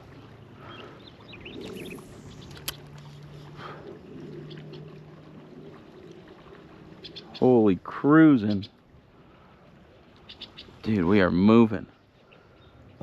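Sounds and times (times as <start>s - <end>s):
water rushing against kayak hull: 0.0s - 8.1s
sharp click: 2.4s - 2.8s.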